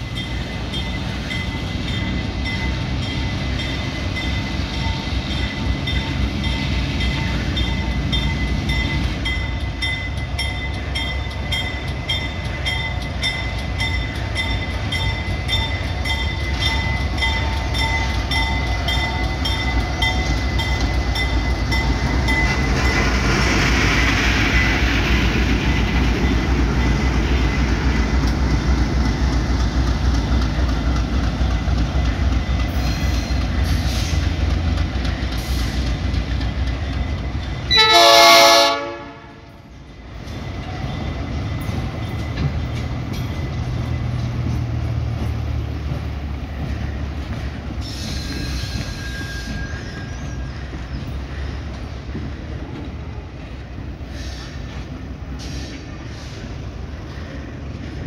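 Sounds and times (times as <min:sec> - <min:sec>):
train rumbling: 0:00.0 - 0:58.0
train horn blast: 0:37.7 - 0:39.6
wheels clicking over rail joints: 0:40.0 - 0:56.4.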